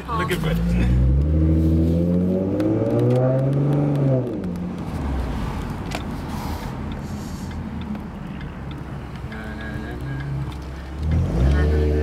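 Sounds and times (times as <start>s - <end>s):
car engine accelerating: 0.0s - 6.0s, 9.3s - 12.0s.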